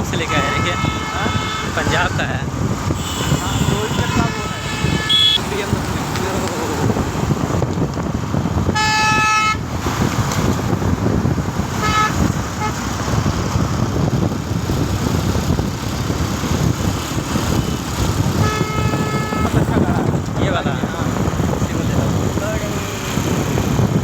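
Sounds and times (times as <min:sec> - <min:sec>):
road traffic rumble: 0:00.0 - 0:24.0
vehicle horn: 0:00.2 - 0:02.3, 0:03.0 - 0:05.6, 0:08.7 - 0:09.6, 0:11.7 - 0:12.8, 0:17.5 - 0:19.9.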